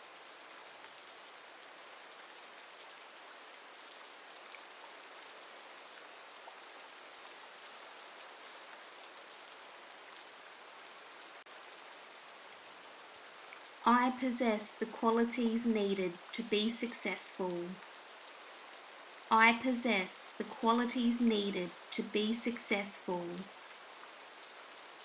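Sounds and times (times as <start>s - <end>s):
steady rain hiss: 0.0s - 25.0s
raindrop ticks: 13.0s - 18.4s.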